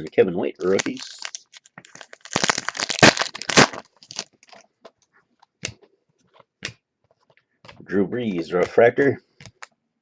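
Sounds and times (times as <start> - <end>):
wrapper crinkling: 0.1 - 4.7.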